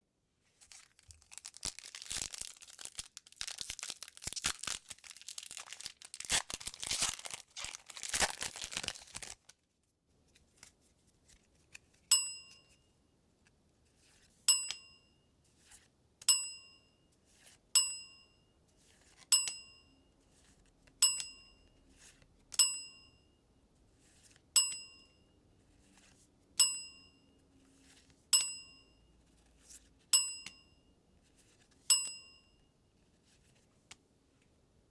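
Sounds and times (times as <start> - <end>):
foil wrapper tearing and crinkling: 0.6 - 9.6.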